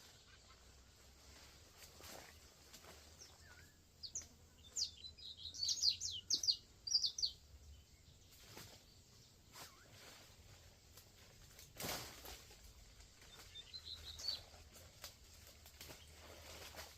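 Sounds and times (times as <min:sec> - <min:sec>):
small bird chirping: 0:03.2 - 0:10.1, 0:13.2 - 0:15.1.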